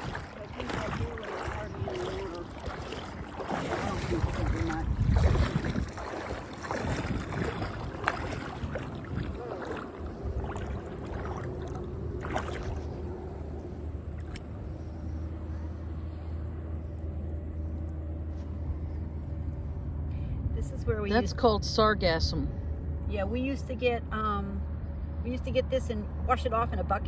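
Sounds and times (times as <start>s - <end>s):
splashing footsteps in water: 0.0s - 14.7s
low engine hum: 0.0s - 27.0s.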